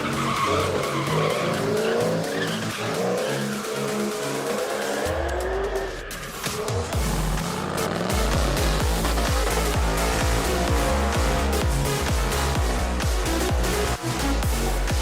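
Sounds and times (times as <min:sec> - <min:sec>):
tires squealing and skidding: 0:00.0 - 0:14.8
background music: 0:00.0 - 0:15.0
race car engine revving: 0:00.0 - 0:15.0.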